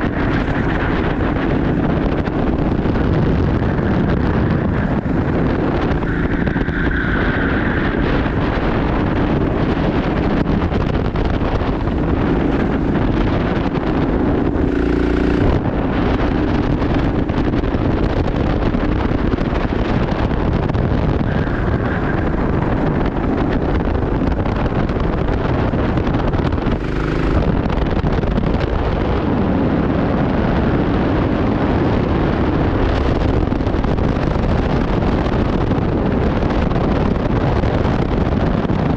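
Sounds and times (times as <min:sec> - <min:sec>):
racing kart engine: 0:00.0 - 0:29.0
wind noise on microphone: 0:00.0 - 0:38.9.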